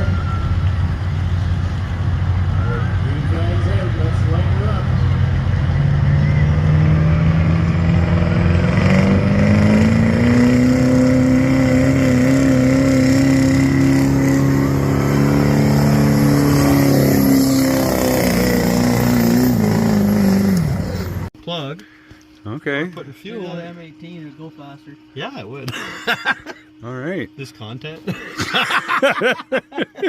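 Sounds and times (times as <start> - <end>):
diesel engine at full throttle: 0.0 - 21.3.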